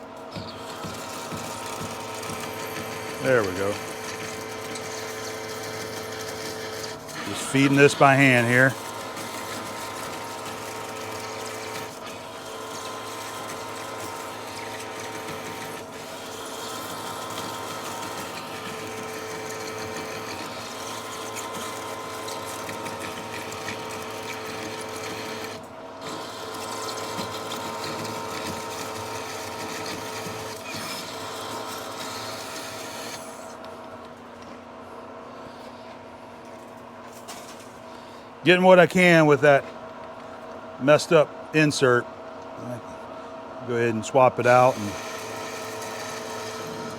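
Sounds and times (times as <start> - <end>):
lathe gear whine: 0.0 - 33.9, 40.8 - 46.9
harsh scraping metal cutting: 0.4 - 33.6, 43.7 - 46.9.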